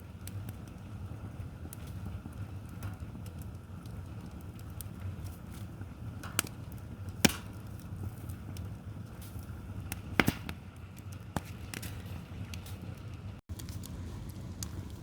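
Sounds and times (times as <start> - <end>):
wood fire burning: 0.0 - 15.0
logs popping and snapping: 4.6 - 8.4, 9.2 - 12.8.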